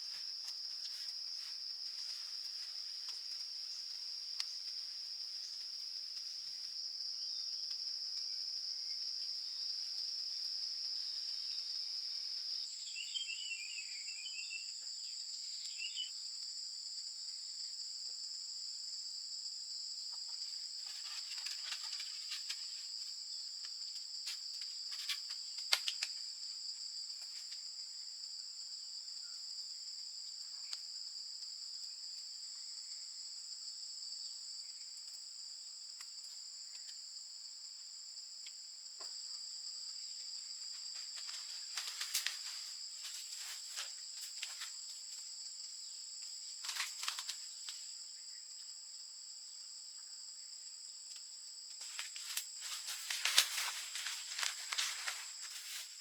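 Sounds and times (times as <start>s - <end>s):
insects trilling: 0.0s - 56.0s
higher insect trill: 51.5s - 56.0s.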